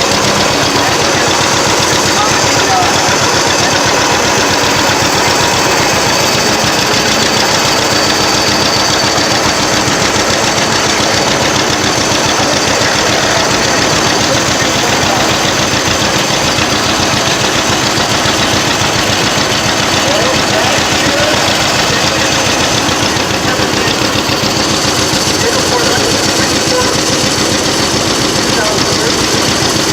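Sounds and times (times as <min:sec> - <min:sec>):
tractor engine running: 0:00.0 - 0:29.9.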